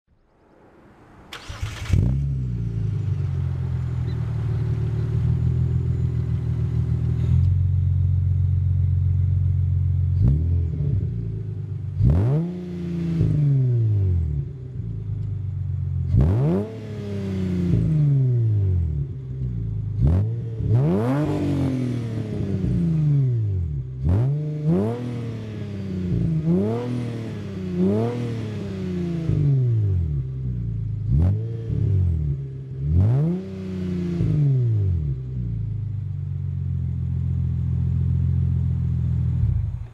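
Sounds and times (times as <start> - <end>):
car engine starting and revving: 0.6 - 39.9.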